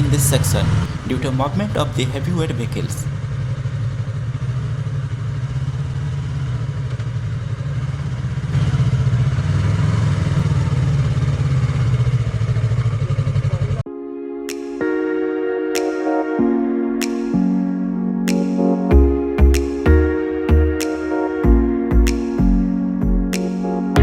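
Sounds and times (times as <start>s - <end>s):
motorcycle engine running: 3.1s - 13.8s.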